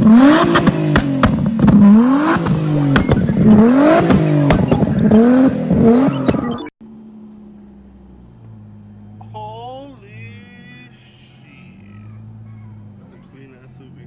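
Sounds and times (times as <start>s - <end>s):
exhaust pops and crackles: 0.0s - 6.6s
car engine revving: 0.0s - 9.4s, 10.1s - 14.0s.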